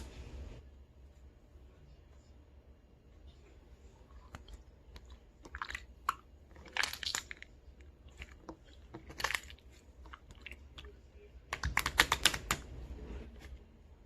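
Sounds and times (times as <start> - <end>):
slime crunching and squishing: 4.2 - 12.7.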